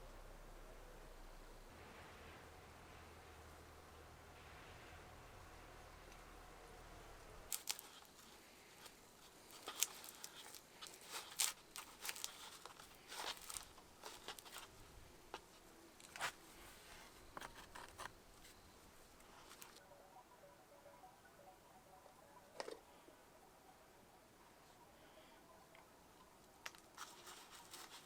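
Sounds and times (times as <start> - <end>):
snaps crackles and rustles: 7.5 - 19.8, 26.4 - 28.0.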